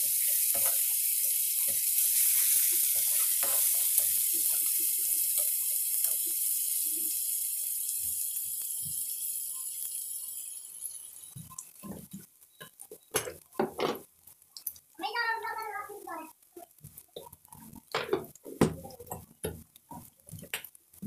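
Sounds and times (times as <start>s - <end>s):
steel spoon scraping: 0.0s - 6.3s
paste sizzling in hot oil: 0.0s - 21.0s.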